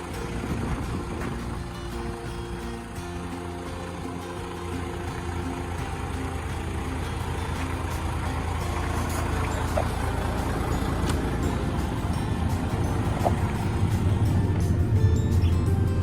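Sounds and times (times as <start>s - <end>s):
truck diesel engine rumbling: 0.0s - 16.0s.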